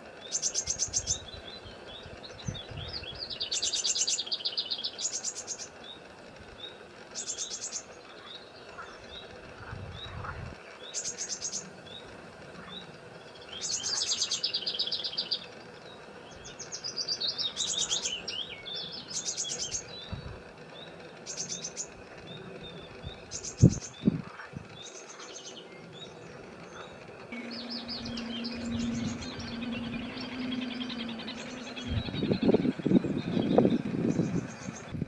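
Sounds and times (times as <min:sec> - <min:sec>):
low steady hum: 0:00.0 - 0:35.0
songbird trilling: 0:00.0 - 0:35.0.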